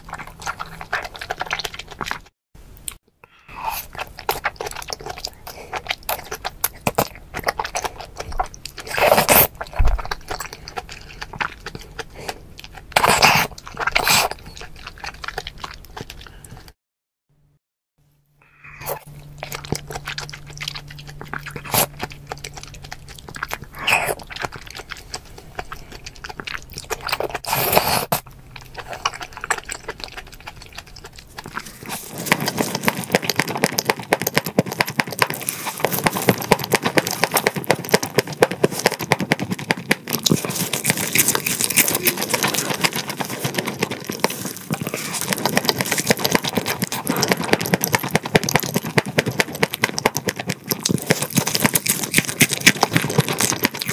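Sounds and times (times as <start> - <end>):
crunchy chewing of fish: 0.0 - 16.8, 18.5 - 53.9
wet chewing of oyster: 0.0 - 16.8, 18.6 - 53.9
mouth sounds: 18.4 - 29.6, 40.4 - 43.9.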